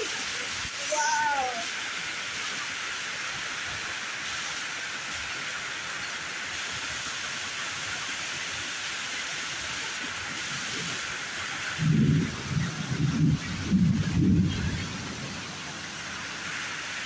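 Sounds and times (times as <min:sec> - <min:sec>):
heavy rain pouring down: 0:00.0 - 0:17.0.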